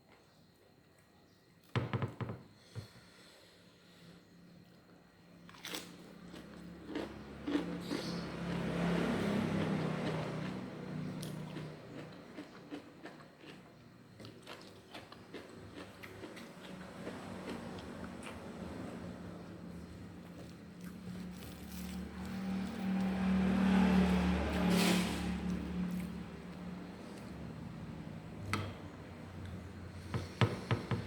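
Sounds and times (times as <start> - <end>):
chewing and crunching food: 5.4 - 19.1, 19.8 - 23.2.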